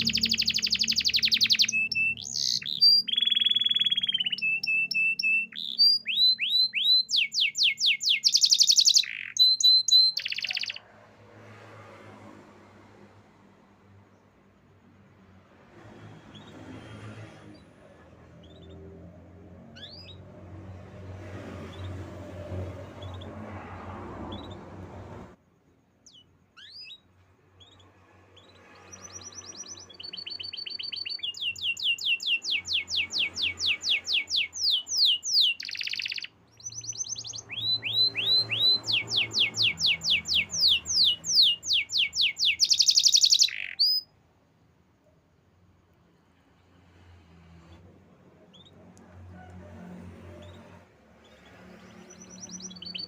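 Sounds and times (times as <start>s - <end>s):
canary singing trills: 0.0s - 10.9s, 16.3s - 21.0s, 26.0s - 44.2s, 46.6s - 48.9s, 50.3s - 53.0s.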